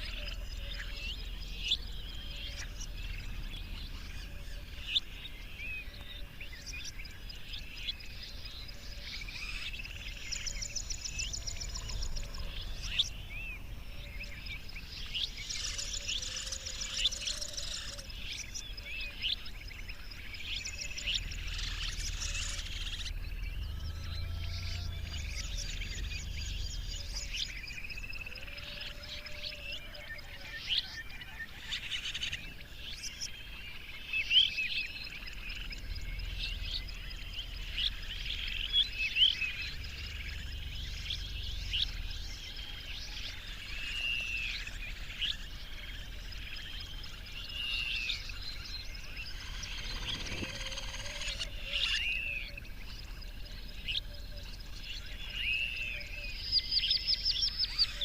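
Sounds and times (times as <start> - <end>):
low steady rumble: 0.0 - 18.8, 19.4 - 29.2, 34.7 - 58.0
birds chirping: 0.0 - 58.0
low rumble: 21.0 - 28.1, 35.1 - 47.5.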